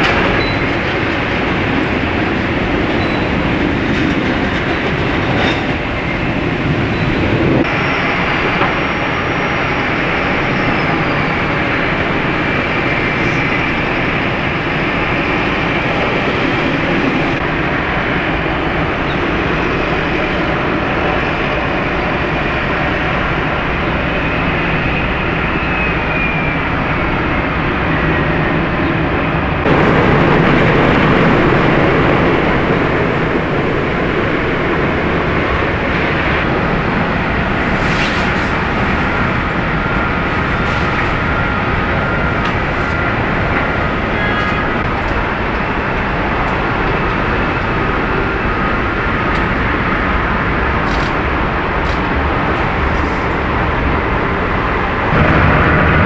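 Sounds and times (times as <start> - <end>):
jet airliner engines running: 0.0 - 56.0
faint falling whine: 17.3 - 45.0, 52.6 - 56.0.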